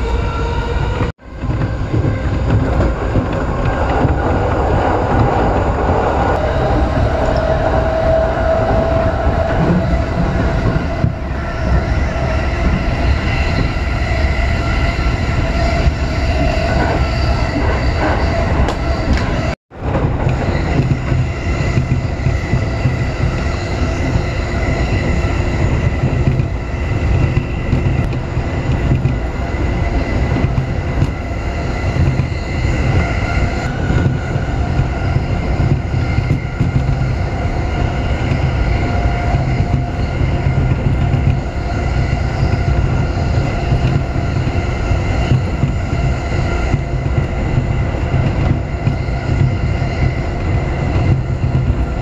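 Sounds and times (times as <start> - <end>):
train whine: 0.0 - 52.0
wheels rumbling on rail: 0.0 - 52.0.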